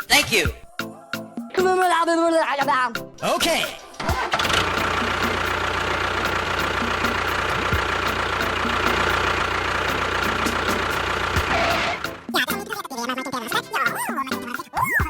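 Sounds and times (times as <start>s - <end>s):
engine idling: 3.2s - 12.3s.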